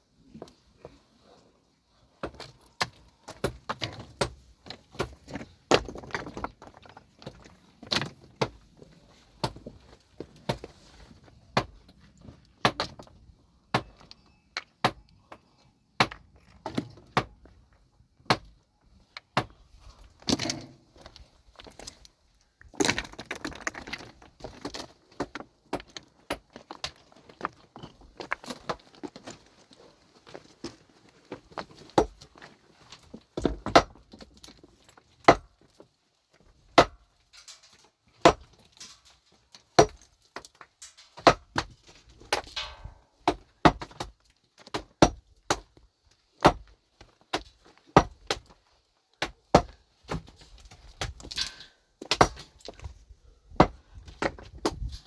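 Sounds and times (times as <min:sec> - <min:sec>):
hard objects clattering: 0:22.7 - 0:29.2.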